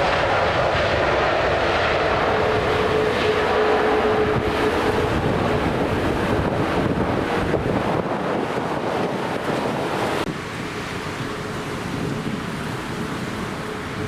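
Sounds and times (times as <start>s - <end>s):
dull rumble: 0.0s - 10.3s
jet engine roar: 0.0s - 14.0s
wind on microphone: 0.0s - 14.0s.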